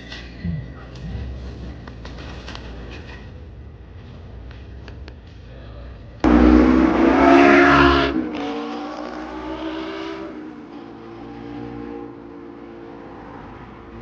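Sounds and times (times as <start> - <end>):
street traffic: 0.0 - 14.0
car engine revving: 6.2 - 14.0.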